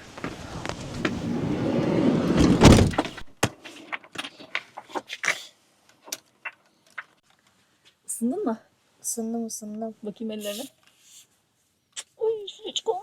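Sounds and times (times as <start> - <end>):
outside noise: 0.0 - 8.6
door shutting with a thud: 0.7 - 3.3.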